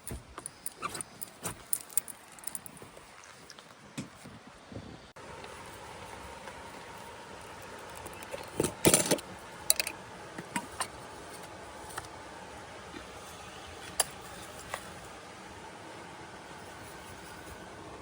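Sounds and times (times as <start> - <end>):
small hard objects clinking: 0.0 - 3.0.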